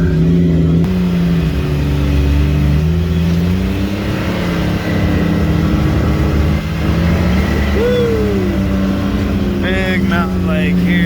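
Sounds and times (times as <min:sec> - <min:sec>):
side-by-side vehicle engine running: 0:00.0 - 0:11.0.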